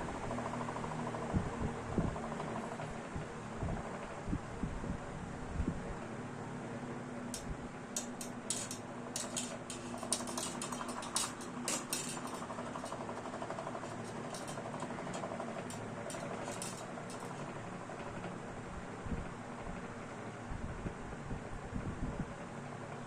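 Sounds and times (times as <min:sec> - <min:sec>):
fan motor hum and air rush: 0:00.0 - 0:23.0
light clicks and rattles: 0:07.3 - 0:17.6.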